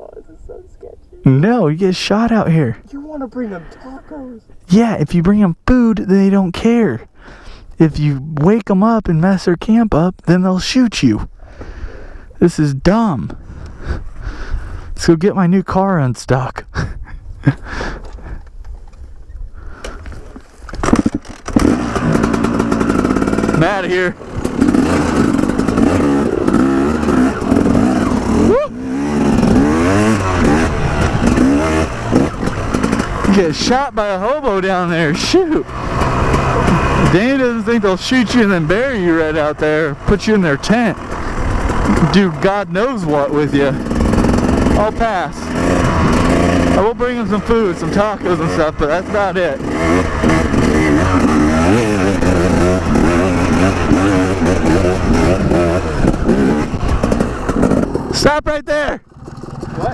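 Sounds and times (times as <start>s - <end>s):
indistinct voices: 0.0s - 7.1s
motorcycle engine revving: 19.6s - 59.9s.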